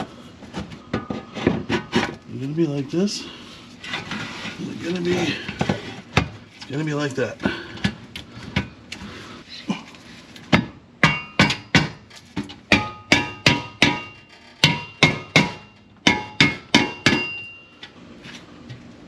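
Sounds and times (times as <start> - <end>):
hammer striking metal: 10.6 - 12.0, 12.7 - 17.7.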